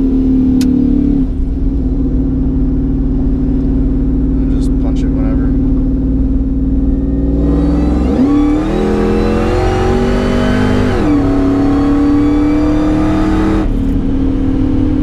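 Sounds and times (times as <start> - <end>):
truck engine at full throttle: 0.0 - 15.0.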